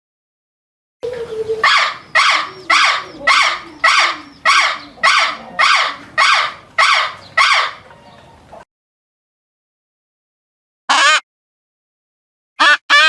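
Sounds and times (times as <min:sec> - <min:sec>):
bird calls: 0:01.0 - 0:08.6.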